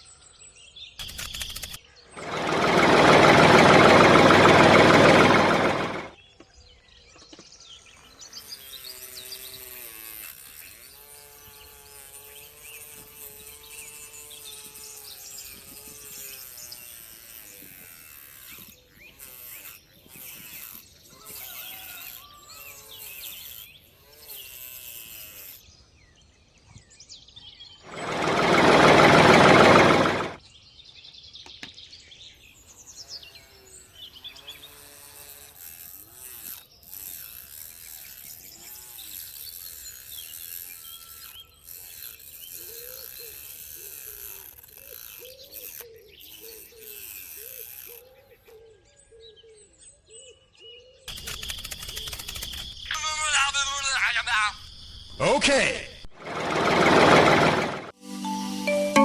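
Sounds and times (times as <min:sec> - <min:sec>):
small motor-driven tool running: 0:01.0 - 0:06.2, 0:07.8 - 0:25.8, 0:27.8 - 0:30.4, 0:32.5 - 0:48.6, 0:51.1 - 0:52.9, 0:56.1 - 0:58.0.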